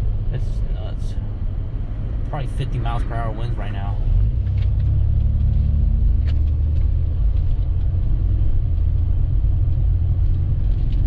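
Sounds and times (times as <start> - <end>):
strong wind buffeting a car: 4.0 - 11.0.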